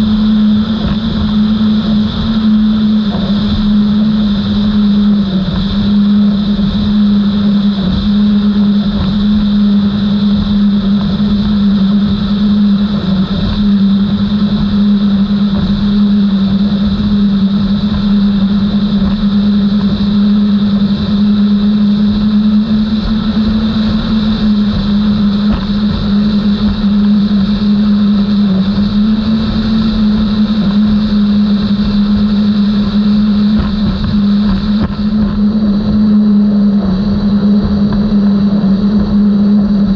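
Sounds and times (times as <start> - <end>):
boat outboard engines droning: 0.0 - 39.9
wind and water rushing: 0.0 - 39.9.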